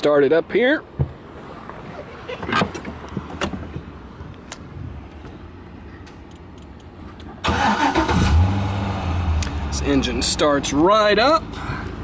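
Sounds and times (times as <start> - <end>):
car engine cranking and starting: 6.6 - 12.0.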